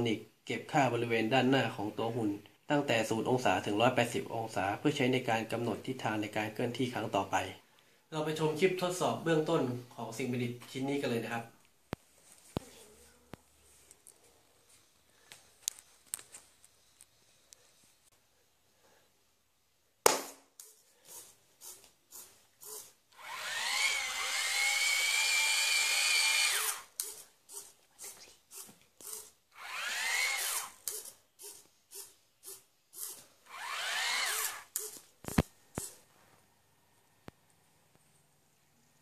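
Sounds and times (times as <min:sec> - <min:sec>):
hand clap: 0:20.0 - 0:20.4
small electric motors whining: 0:22.6 - 0:35.0.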